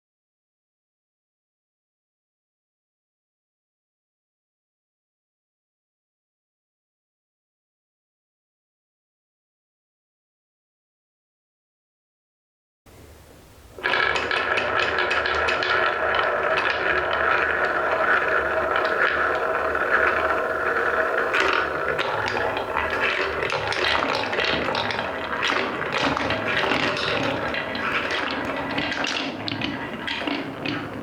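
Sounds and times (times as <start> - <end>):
balls rolling on wooden track: 13.5 - 31.0
balls clacking on track: 13.8 - 31.0.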